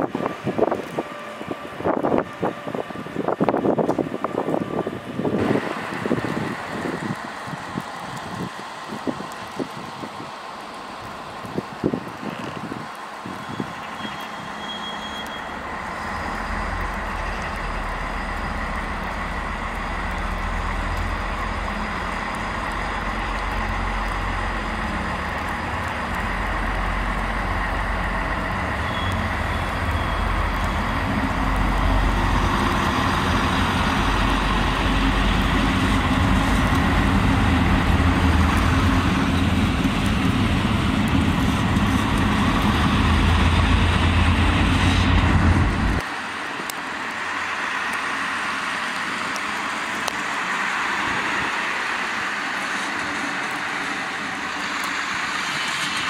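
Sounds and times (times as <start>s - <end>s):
train running noise: 0.0s - 56.0s
low steady drone: 15.5s - 46.1s.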